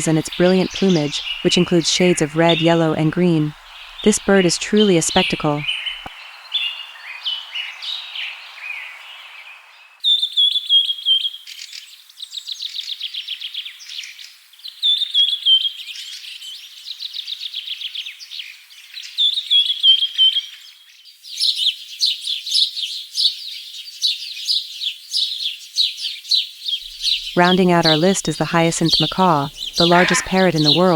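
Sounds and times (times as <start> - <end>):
small birds chirping and singing: 0.0 - 19.8, 20.5 - 30.9.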